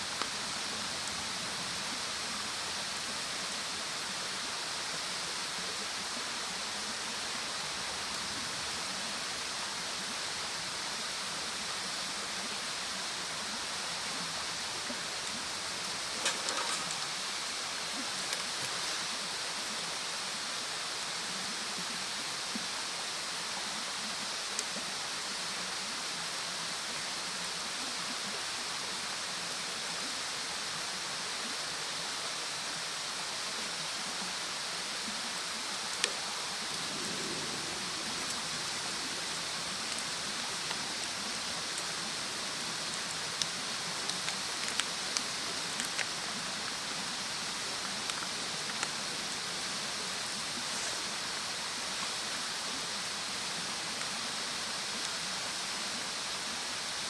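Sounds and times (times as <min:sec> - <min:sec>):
steady fire hiss: 0:00.0 - 0:57.0
wood fire crackling and popping: 0:15.8 - 0:17.4, 0:42.8 - 0:46.8.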